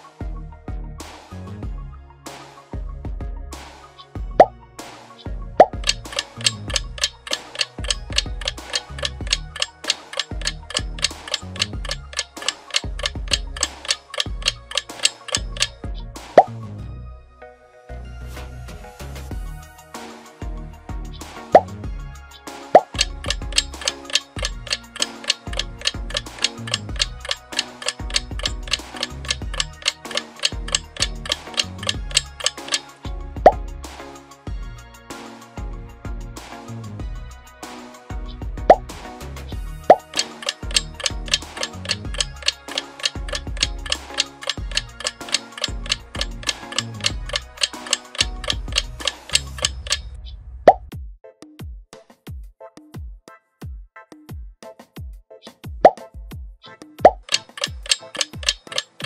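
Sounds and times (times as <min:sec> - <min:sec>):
light background music with bass: 0:00.0 - 0:59.0
clock-like ticking: 0:05.6 - 0:15.8, 0:22.8 - 0:33.0, 0:39.8 - 0:50.2, 0:57.1 - 0:59.0.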